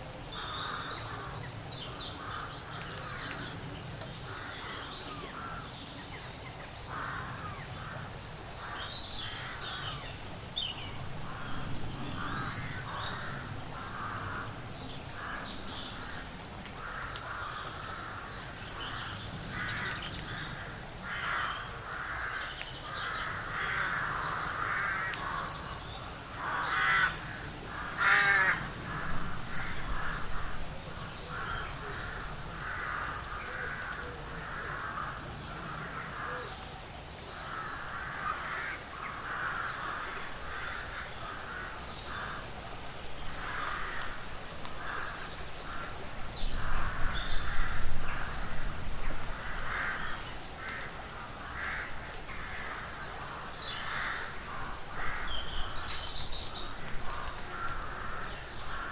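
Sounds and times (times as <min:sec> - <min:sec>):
harsh caw-like animal calls: 0:19.6 - 0:25.7, 0:26.4 - 0:30.6, 0:31.3 - 0:36.5, 0:37.4 - 0:42.5, 0:43.4 - 0:46.0, 0:46.6 - 0:48.4, 0:49.4 - 0:55.8.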